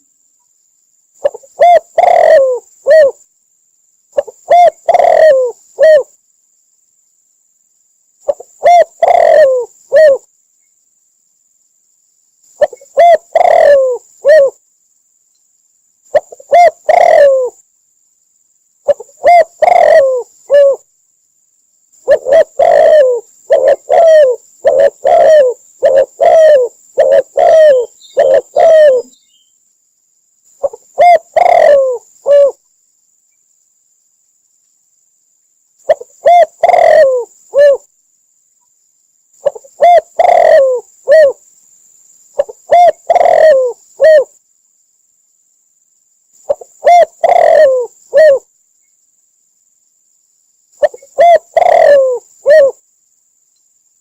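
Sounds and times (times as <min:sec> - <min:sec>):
dove cooing: 0:01.2 - 0:03.2, 0:04.2 - 0:06.1, 0:08.2 - 0:10.3, 0:12.6 - 0:14.6, 0:16.1 - 0:17.6, 0:18.8 - 0:20.9, 0:22.0 - 0:29.2, 0:30.6 - 0:32.6, 0:35.8 - 0:37.9, 0:39.4 - 0:41.4, 0:42.4 - 0:44.4, 0:46.5 - 0:48.5, 0:50.8 - 0:52.8.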